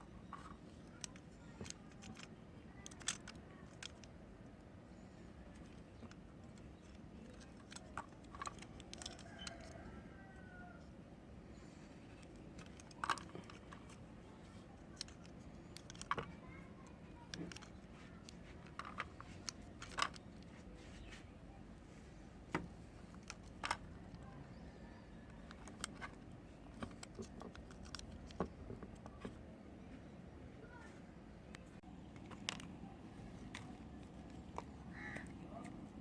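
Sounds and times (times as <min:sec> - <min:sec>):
soap bars clicking: 0:14.8 - 0:20.4.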